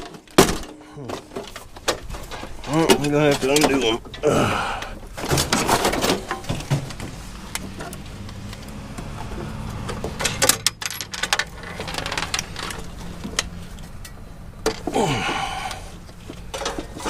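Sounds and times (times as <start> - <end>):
scrap metal clanking: 5.1 - 8.0, 16.1 - 17.0
low engine hum: 6.9 - 10.7.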